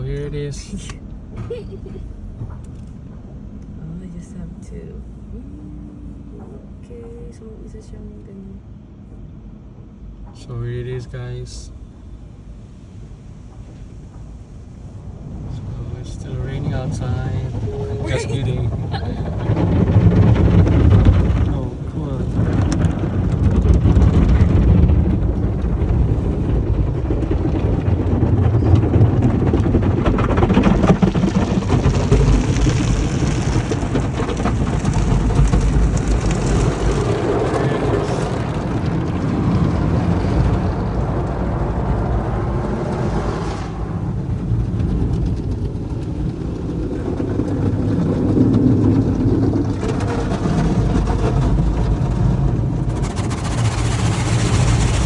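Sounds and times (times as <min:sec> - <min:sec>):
low rumble: 0:00.0 - 0:55.0
car wash water spray: 0:30.7 - 0:55.0.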